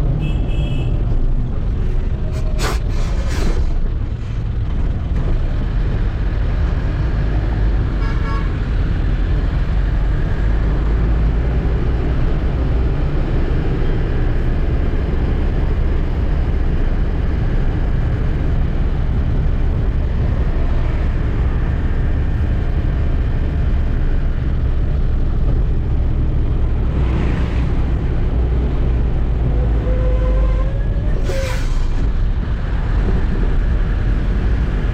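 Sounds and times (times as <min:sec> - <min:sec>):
truck engine rumbling: 0:00.0 - 0:34.9
truck horn toot: 0:08.0 - 0:08.5, 0:29.8 - 0:31.7.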